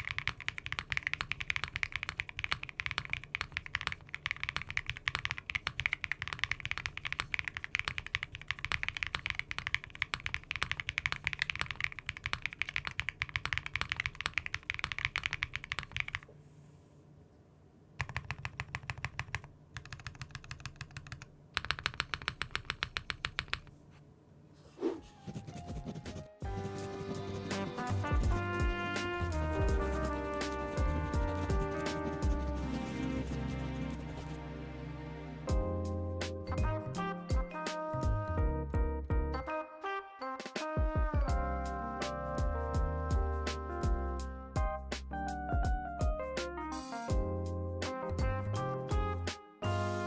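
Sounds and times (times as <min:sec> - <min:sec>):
fast typing on mechanical keyboard: 0:00.0 - 0:16.3, 0:18.0 - 0:23.8.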